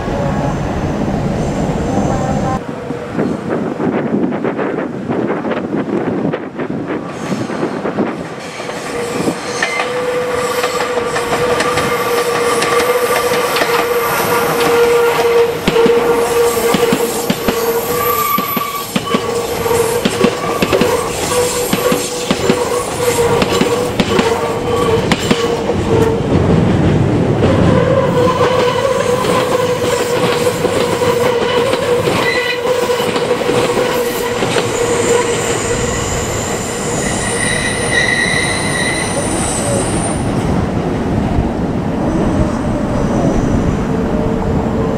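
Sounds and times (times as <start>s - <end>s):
high wheel squeal: 8.9s - 23.5s, 34.6s - 40.3s.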